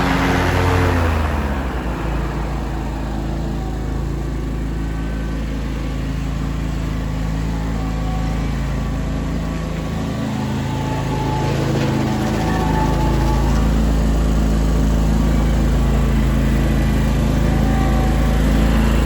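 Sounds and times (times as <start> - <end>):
garden tractor engine humming: 0.0 - 19.0.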